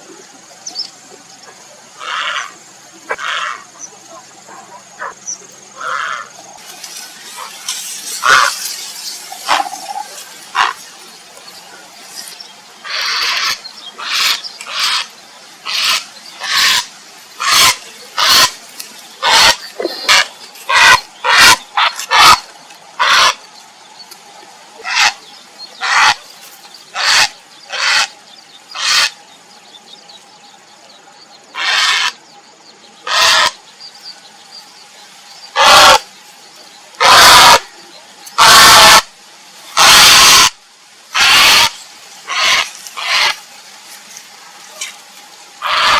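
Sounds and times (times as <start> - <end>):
heron harsh calls: 3.1 - 3.6, 8.2 - 8.6, 10.5 - 10.8, 12.8 - 18.6, 19.2 - 22.4, 23.0 - 23.4, 24.8 - 25.2, 25.8 - 26.2, 26.9 - 28.1, 28.8 - 29.2, 31.6 - 32.2, 33.1 - 33.6, 35.6 - 36.0, 37.0 - 37.7, 38.4 - 39.1, 39.8 - 43.4, 45.6 - 45.9.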